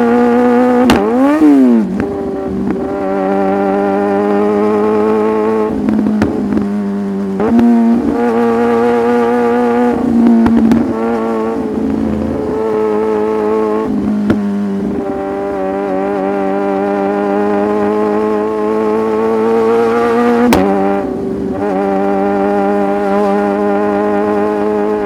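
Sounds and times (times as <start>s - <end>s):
motorcycle engine cruising: 0.0s - 25.0s.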